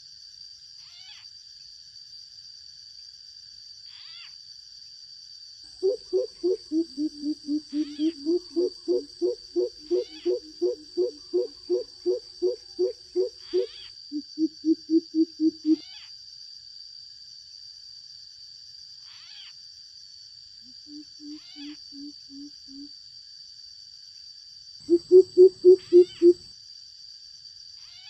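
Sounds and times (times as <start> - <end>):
bird calling deep hoots: 5.8 - 15.8, 20.8 - 22.9, 24.9 - 26.4.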